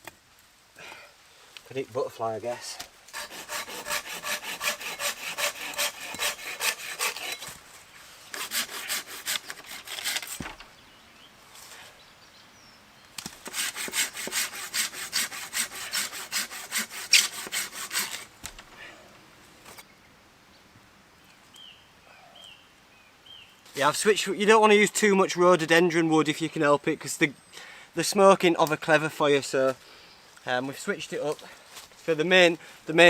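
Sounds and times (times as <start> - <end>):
hand saw cutting wood: 3.1 - 7.6, 8.3 - 10.5, 13.4 - 18.3.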